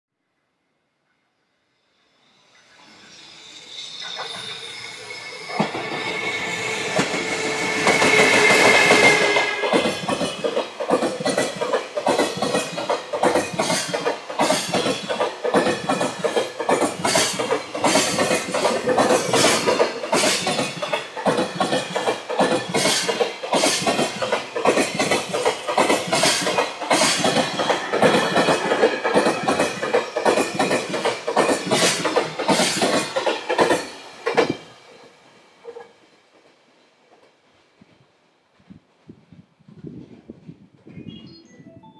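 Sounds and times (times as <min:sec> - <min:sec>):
locomotive high tone: 0:01.6 - 0:10.4
train wheels clattering over rail joint: 0:05.5 - 0:34.7.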